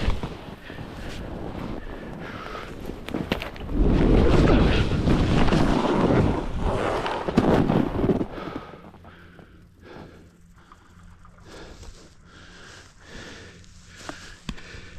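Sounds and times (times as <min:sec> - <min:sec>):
wind rushing over microphone: 0:00.0 - 0:08.4
snowboard sliding through snow: 0:00.0 - 0:08.6.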